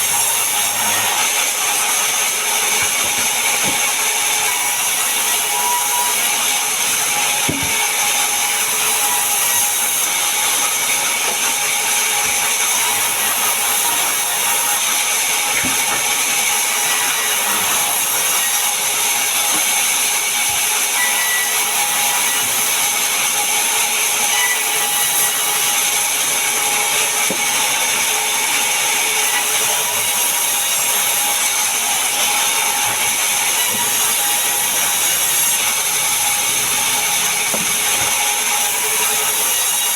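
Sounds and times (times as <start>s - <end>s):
power saw cutting wood: 0.0s - 39.9s.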